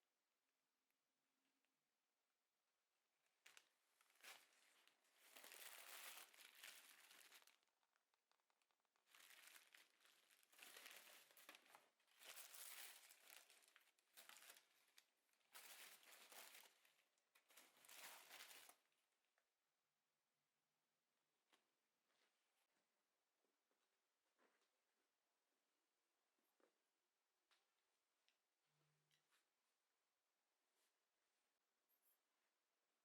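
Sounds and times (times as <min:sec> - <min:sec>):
crinkling: 0:03.3 - 0:18.9.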